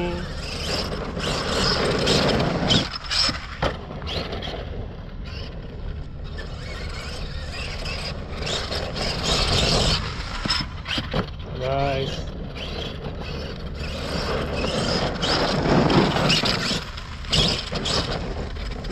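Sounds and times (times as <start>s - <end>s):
rc car driving over dirt: 0.0s - 18.9s.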